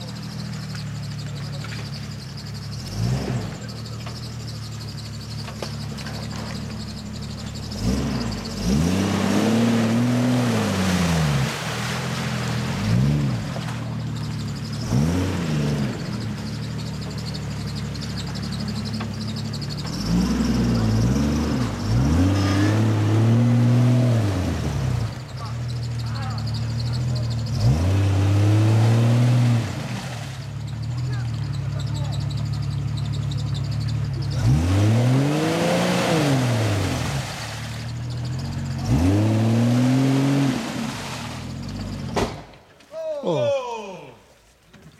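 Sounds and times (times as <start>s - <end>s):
engine revving: 0.0s - 42.4s
rushing churning water and mud: 7.6s - 25.7s, 26.4s - 32.2s, 33.7s - 42.4s.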